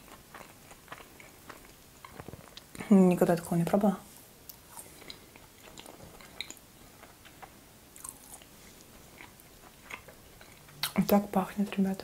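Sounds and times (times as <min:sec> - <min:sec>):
chewing soft food mouth clicks: 0:04.5 - 0:08.5.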